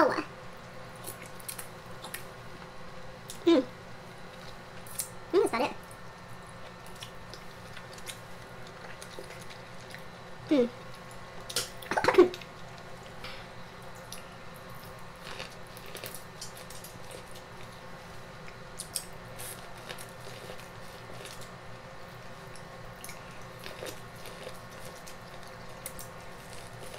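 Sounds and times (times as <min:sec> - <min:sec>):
person chewing food: 0:06.5 - 0:10.2, 0:14.0 - 0:17.7, 0:18.4 - 0:26.9.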